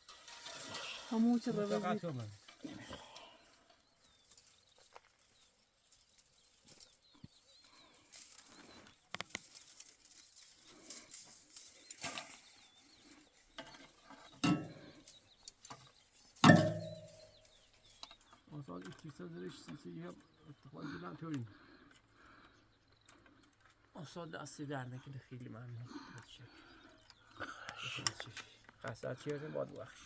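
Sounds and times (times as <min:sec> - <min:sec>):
faint birds chirping: 0:00.0 - 0:30.0
knocks and clatter of building work: 0:11.9 - 0:20.6
ringing metal clang: 0:14.4 - 0:14.8, 0:16.4 - 0:17.5.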